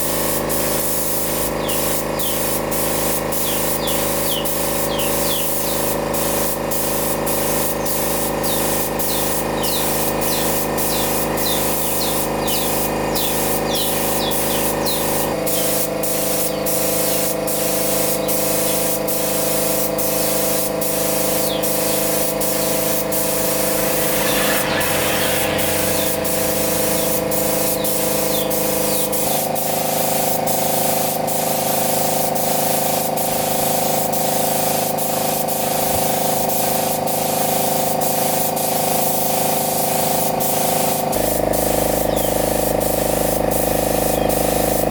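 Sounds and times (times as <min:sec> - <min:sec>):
hiss of sprayed air: 0:00.0 - 0:44.9.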